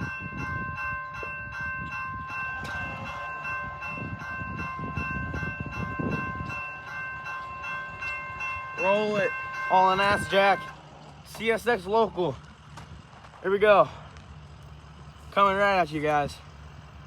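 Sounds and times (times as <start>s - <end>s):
railroad crossing bell ringing: 0.0s - 12.7s
low uneven rumble: 0.6s - 17.0s.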